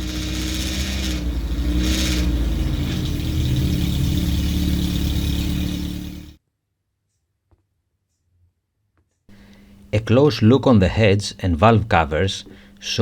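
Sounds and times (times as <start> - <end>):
car engine idling: 0.0 - 6.4, 9.3 - 13.0.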